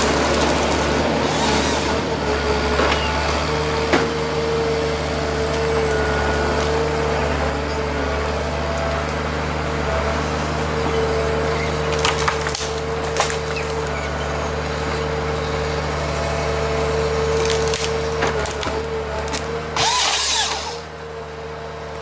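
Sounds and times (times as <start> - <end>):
wood cracking and splintering: 0.0 - 2.0, 11.5 - 15.1, 17.2 - 20.9.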